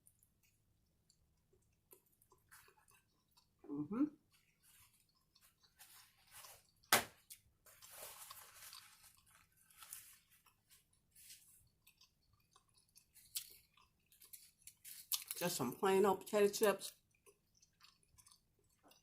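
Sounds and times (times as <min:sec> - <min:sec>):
sandwich being chewed: 0:00.0 - 0:15.4, 0:16.9 - 0:19.0
sharp crunch: 0:06.9 - 0:07.3.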